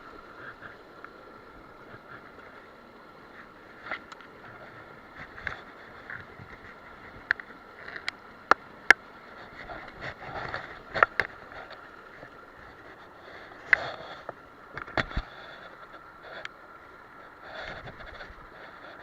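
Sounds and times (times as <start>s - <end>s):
stream water running: 0.0s - 19.0s.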